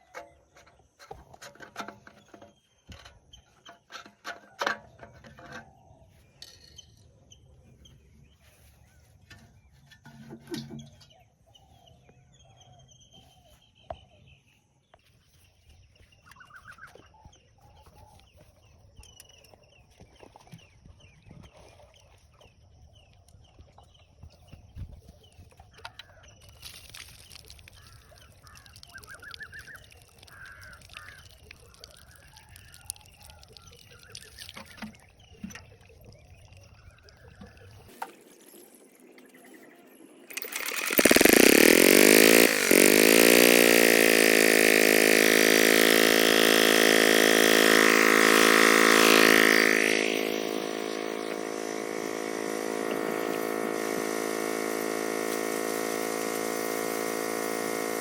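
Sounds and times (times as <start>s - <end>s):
diesel engine starting and running: 40.3s - 58.0s.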